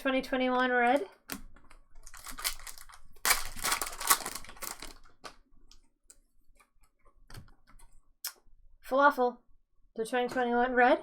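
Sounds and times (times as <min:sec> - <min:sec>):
cards and wrappers rustling: 0:01.2 - 0:05.8.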